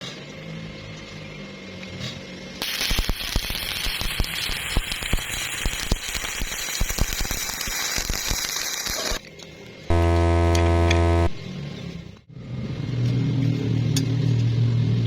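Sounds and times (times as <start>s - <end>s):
welding arc crackling and popping: 2.6s - 9.2s, 9.9s - 11.4s.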